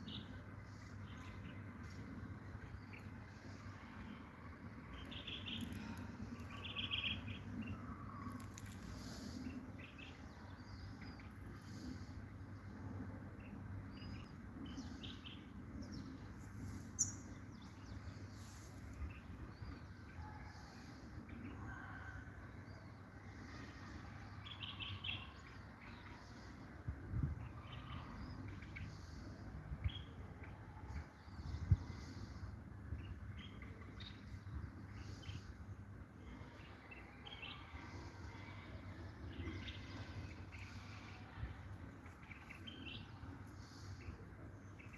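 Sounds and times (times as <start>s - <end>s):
faint low hum: 0.0s - 44.9s
bird twittering chirps: 16.9s - 17.3s.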